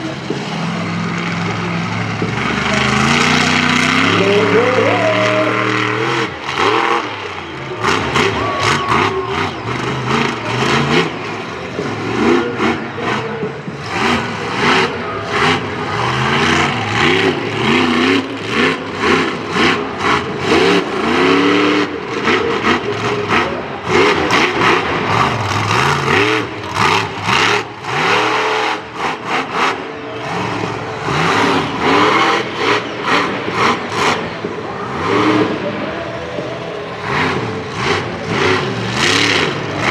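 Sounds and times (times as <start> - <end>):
truck engine revving hard: 0.0 - 39.9.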